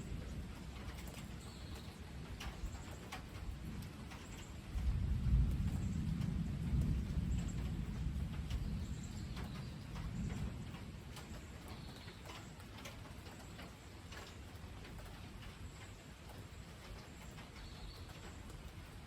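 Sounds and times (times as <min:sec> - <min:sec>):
rain dripping: 0:00.0 - 0:19.0
thunder rumbling: 0:04.6 - 0:11.6.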